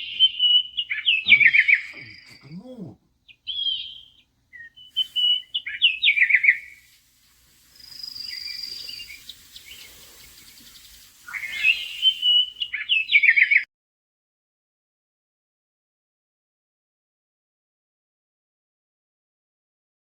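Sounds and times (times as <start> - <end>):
songbirds chirping and singing: 0.0 - 6.8, 7.8 - 13.6
high whistled bird note: 4.8 - 6.9, 7.7 - 13.2.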